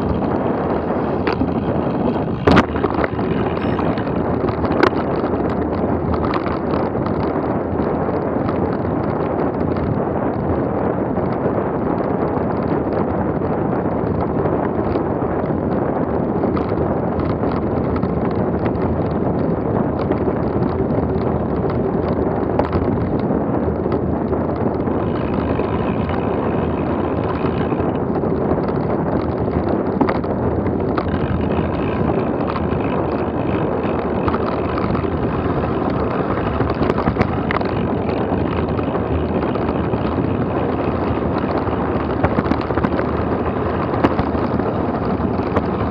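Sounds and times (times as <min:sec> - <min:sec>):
rumble and knocks of rough ground: 0:00.0 - 0:45.9
wind rushing over microphone: 0:00.0 - 0:45.9
faint high tones: 0:03.4 - 0:04.2.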